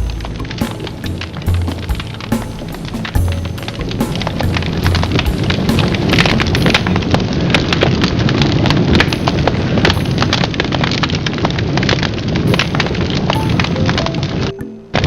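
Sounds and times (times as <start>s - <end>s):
bonfire flames rushing: 0.0s - 14.5s
fire crackling and popping: 0.0s - 15.0s.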